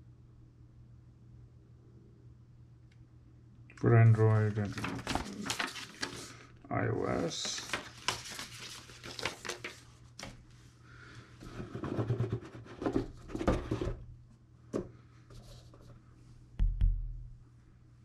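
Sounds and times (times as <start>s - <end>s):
packaging rustling: 4.3s - 6.4s, 7.2s - 10.4s.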